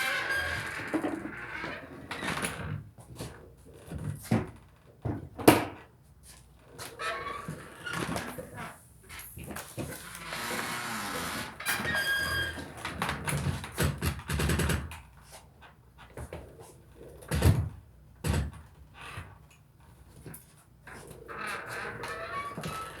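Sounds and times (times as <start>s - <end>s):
high squeak: 0.0s - 1.4s, 10.2s - 12.7s.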